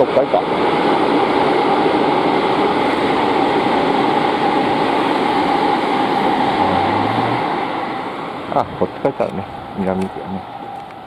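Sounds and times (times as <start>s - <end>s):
train rushing past: 0.0s - 11.0s
steady whine: 4.2s - 10.9s.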